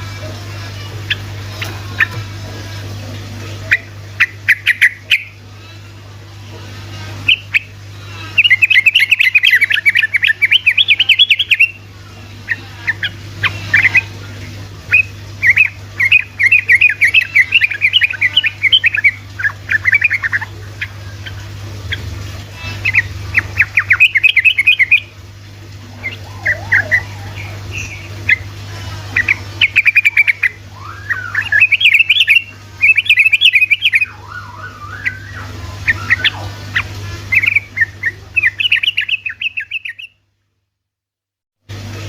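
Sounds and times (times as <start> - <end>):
bird chattering song: 3.6 - 5.4, 7.2 - 11.8, 12.5 - 14.1, 14.9 - 25.1, 26.0 - 28.5, 29.1 - 40.2.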